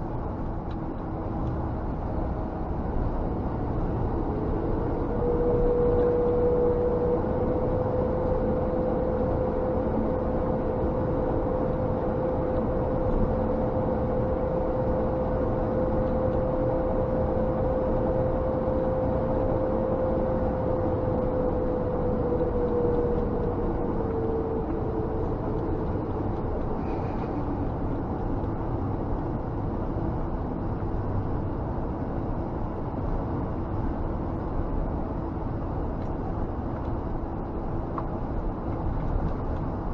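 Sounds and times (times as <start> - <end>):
high whine: 0.0 - 30.7
truck engine and road drone: 0.0 - 39.9.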